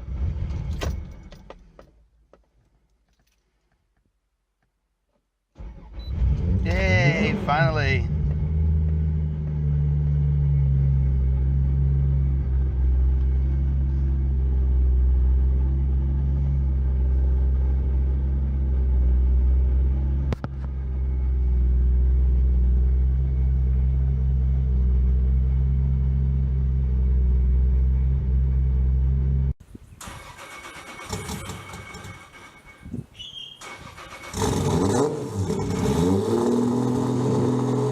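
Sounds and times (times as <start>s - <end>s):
car engine idling: 6.6s - 32.4s.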